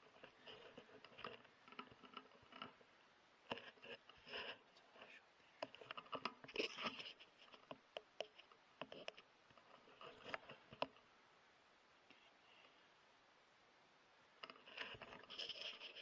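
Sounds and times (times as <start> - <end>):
crackling rustles: 0.0 - 11.1, 14.4 - 16.0
faint clicks: 0.0 - 11.1.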